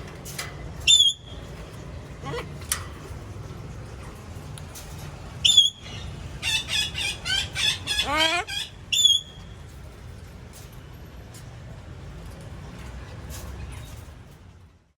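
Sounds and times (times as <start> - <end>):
parrot screeching: 5.5 - 9.3
parrot chattering calls: 5.5 - 9.4.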